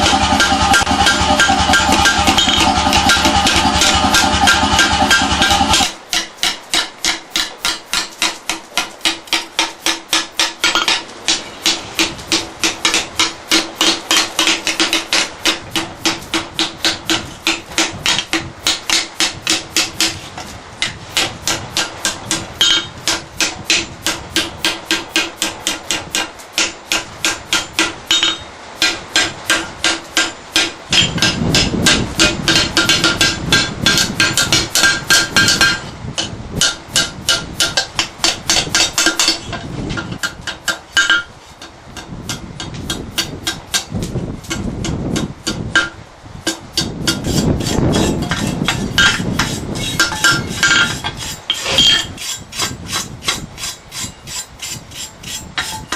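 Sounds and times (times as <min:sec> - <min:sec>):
heavy low rumble: 0:00.0 - 0:05.9, 0:30.8 - 0:40.4, 0:41.9 - 0:55.9
air hammer striking: 0:00.0 - 0:55.9.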